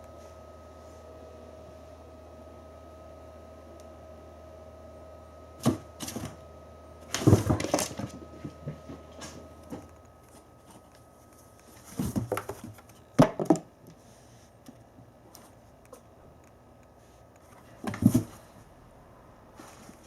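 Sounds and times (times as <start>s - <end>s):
cardboard box knocking and scratching: 7.1s - 9.9s, 11.8s - 13.6s, 17.8s - 18.4s.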